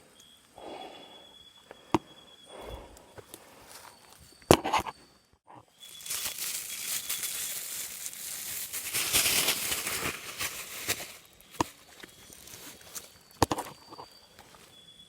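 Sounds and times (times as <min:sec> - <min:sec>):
rustling and crinkling: 0:05.7 - 0:14.8.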